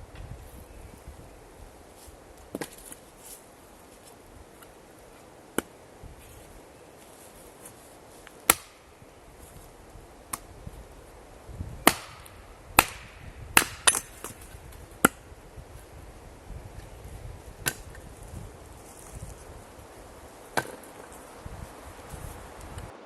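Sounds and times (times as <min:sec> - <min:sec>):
axe splitting firewood: 0:02.5 - 0:03.3, 0:04.5 - 0:10.6, 0:11.7 - 0:15.5, 0:16.8 - 0:18.3, 0:20.5 - 0:21.2.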